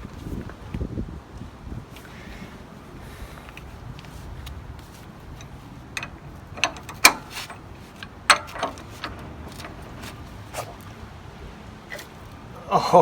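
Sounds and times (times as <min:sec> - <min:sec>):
wrench clicking and clanking: 0:05.3 - 0:10.7.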